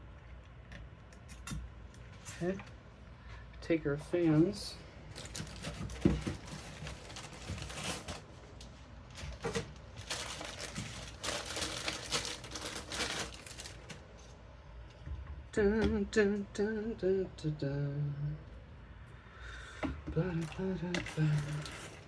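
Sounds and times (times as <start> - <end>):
packaging rustling and crinkling: 5.1 - 14.4, 20.2 - 22.0.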